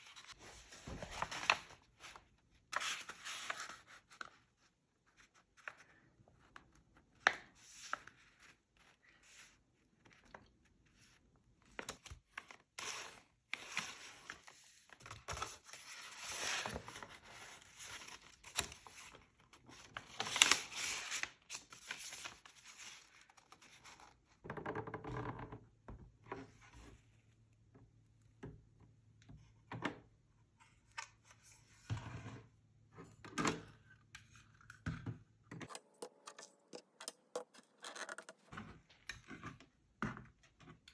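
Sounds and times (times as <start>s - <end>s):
paper rustling and scraping: 35.6s - 38.9s.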